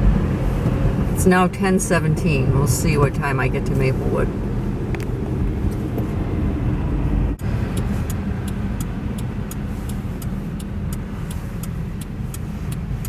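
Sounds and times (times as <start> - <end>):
car engine and tyres rumbling: 0.0 - 13.0
light ticking: 7.4 - 13.0.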